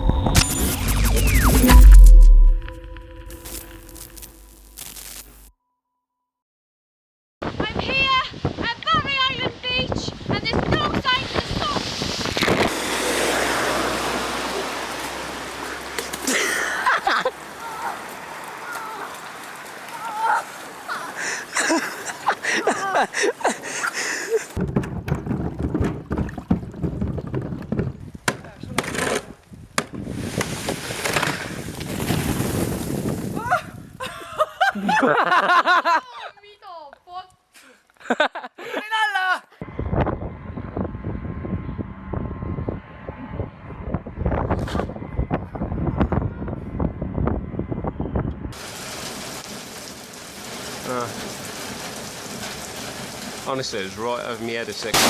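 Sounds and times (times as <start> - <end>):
wind buffeting microphone: 7.5 - 12.8, 31.4 - 34.0, 39.7 - 48.6
steady rain hiss: 12.7 - 24.5, 48.6 - 55.0
people calling out: 17.5 - 21.2.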